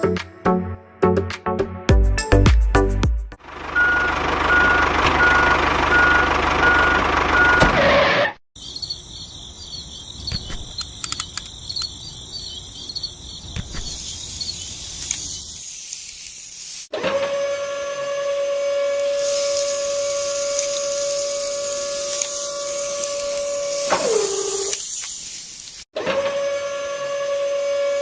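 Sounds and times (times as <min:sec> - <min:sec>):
loud engine-like noise: 0:03.4 - 0:08.4, 0:17.0 - 0:24.8
reversing alarm beeping: 0:03.7 - 0:07.8
scattered clicks: 0:10.3 - 0:12.0.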